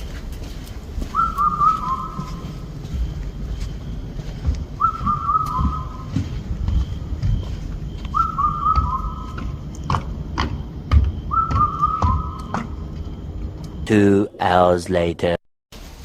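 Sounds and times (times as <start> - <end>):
bird whistled call: 1.1 - 2.6, 4.8 - 6.2, 8.0 - 9.5, 11.3 - 12.6.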